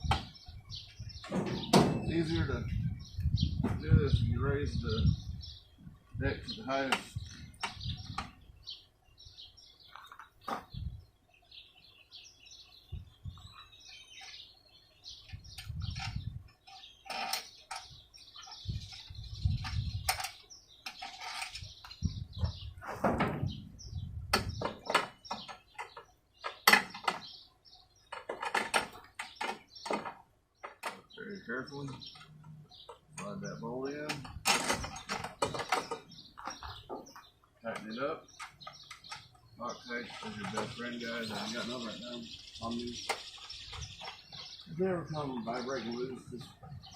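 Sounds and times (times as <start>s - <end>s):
birds chirping: 0.0s - 46.9s
lawn mower parts clicking and thudding: 1.2s - 2.3s, 15.2s - 23.6s, 24.3s - 27.4s, 28.0s - 31.2s, 31.8s - 41.7s.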